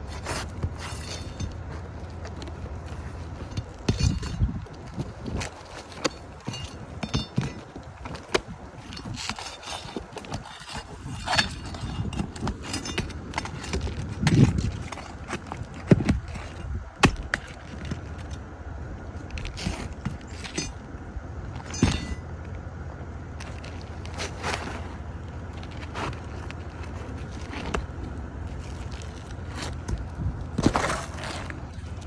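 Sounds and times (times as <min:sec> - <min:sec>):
shingles cracking and scraping: 0:00.0 - 0:32.0
heavy thuds: 0:19.4 - 0:22.3.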